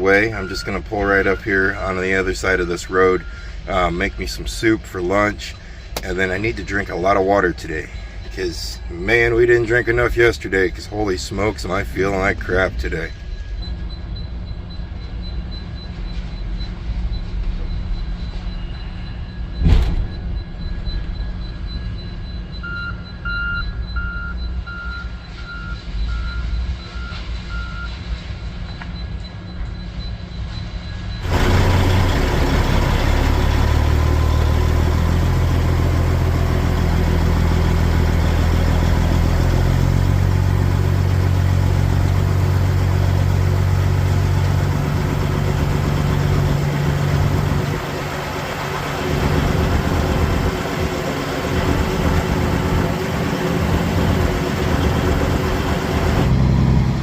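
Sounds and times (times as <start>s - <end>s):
backup alarm beeping: 0.0s - 28.0s, 28.6s - 56.3s
sharp knock: 19.6s - 20.3s
diesel truck engine pulling away: 31.2s - 57.0s
low steady rumble: 31.2s - 57.0s.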